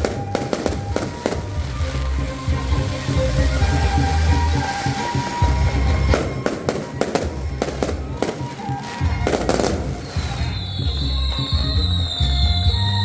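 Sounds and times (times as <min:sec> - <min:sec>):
fireworks bangs and cracks: 0:00.0 - 0:13.0
music with heavy bass: 0:00.0 - 0:13.0.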